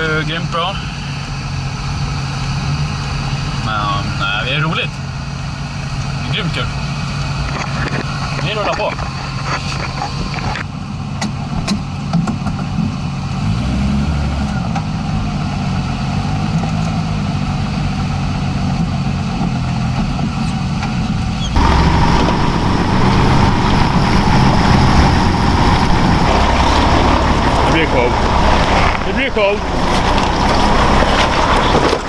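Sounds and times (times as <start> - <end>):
truck engine revving: 21.6 - 32.0.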